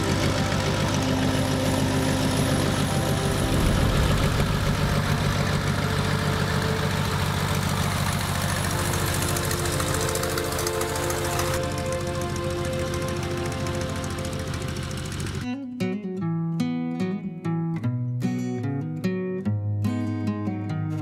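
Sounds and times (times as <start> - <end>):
aircraft engine running: 0.0 - 15.5
background music: 0.0 - 15.8.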